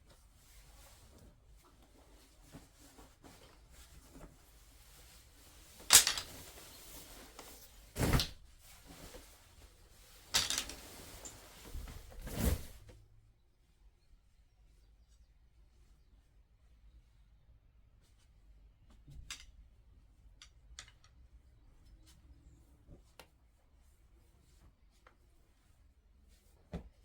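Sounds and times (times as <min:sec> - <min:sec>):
handling noise: 0:05.8 - 0:06.6, 0:10.3 - 0:11.7
knocks and clatters: 0:05.9 - 0:06.4, 0:10.4 - 0:10.9.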